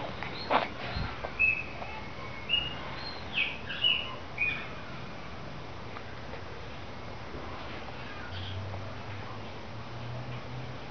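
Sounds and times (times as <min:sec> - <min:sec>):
bird chirping: 0:00.2 - 0:04.8.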